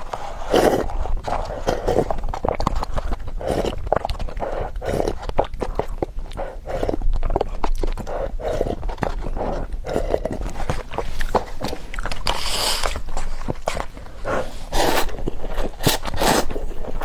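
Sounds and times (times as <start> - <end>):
chewing noodles: 0.0 - 17.0
wet mouth clicks and smacks: 5.1 - 14.0.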